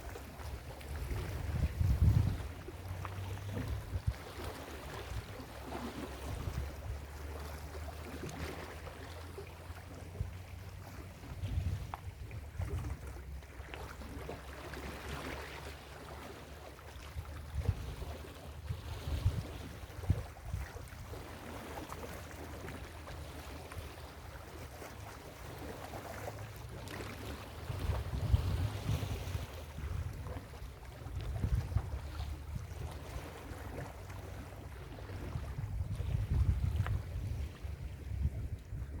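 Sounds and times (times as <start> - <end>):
wind buffeting microphone: 0.0 - 5.4, 6.2 - 7.1, 11.2 - 13.2, 17.0 - 21.2, 27.5 - 33.2, 35.0 - 39.0
ocean waves breaking: 0.0 - 39.0.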